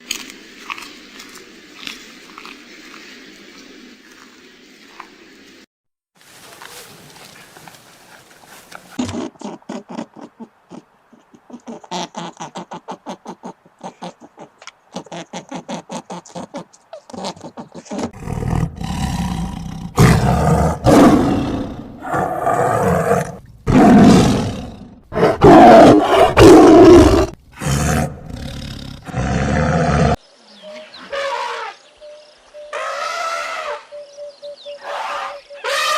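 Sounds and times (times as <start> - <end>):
big cat roaring: 18.1 - 30.2.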